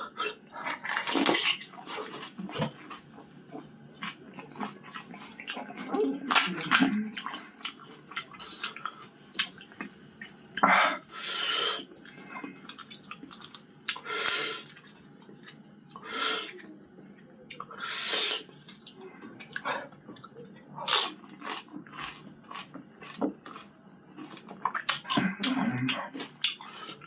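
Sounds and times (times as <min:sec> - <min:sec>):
wet slurps and chewing: 0:17.5 - 0:27.0.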